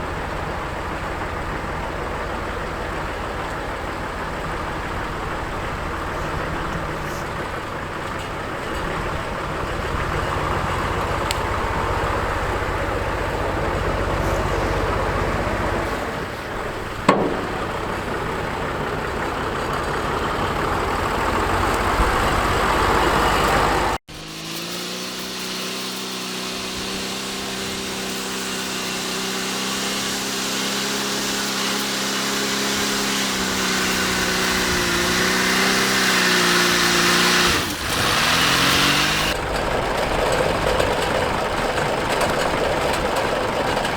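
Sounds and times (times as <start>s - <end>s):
engine running at steady pitch: 0.0s - 43.9s
tractor engine running: 0.0s - 43.9s
sharp metal clank: 17.1s - 18.1s.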